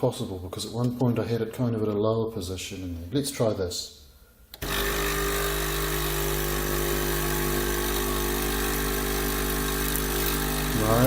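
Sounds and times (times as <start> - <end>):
coffee machine pump buzzing: 4.6 - 11.0.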